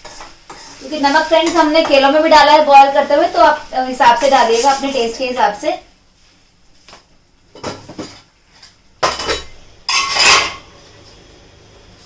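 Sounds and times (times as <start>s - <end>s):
metal spoon scraping a pan: 0.0s - 2.1s, 9.9s - 10.7s.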